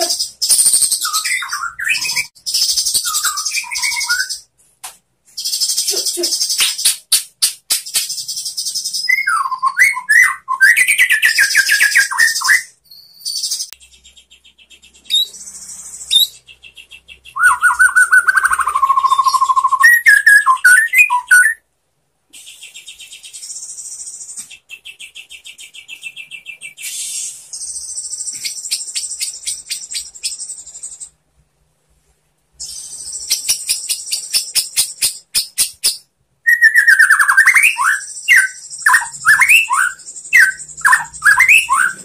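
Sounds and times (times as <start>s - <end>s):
bird whistled phrases: 0.0s - 4.4s, 8.8s - 13.7s, 16.1s - 21.6s, 25.1s - 30.3s, 32.6s - 42.0s.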